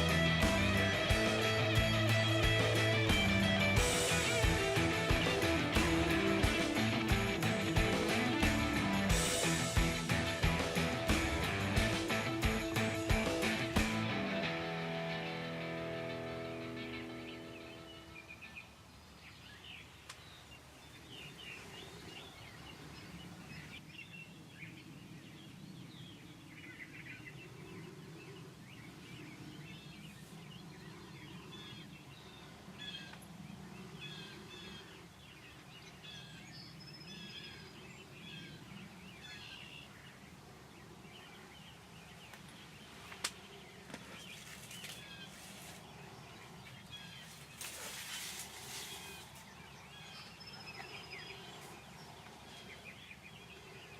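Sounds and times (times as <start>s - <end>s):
songbirds chirping: 0.0s - 53.9s
short rustle: 44.0s - 46.0s, 47.1s - 49.5s.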